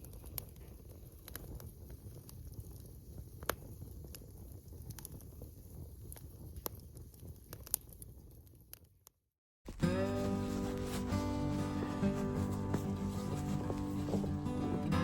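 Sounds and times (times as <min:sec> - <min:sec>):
campfire crackling and popping: 0:00.0 - 0:08.9.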